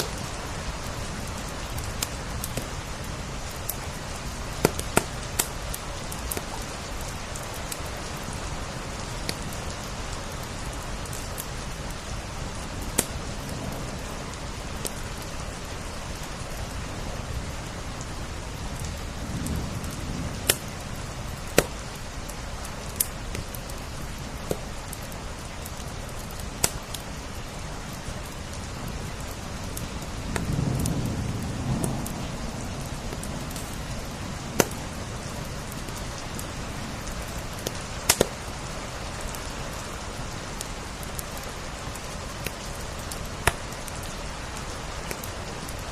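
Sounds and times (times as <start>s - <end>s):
rain on window glass: 0.0s - 45.9s
wood fire crackling: 0.0s - 45.9s.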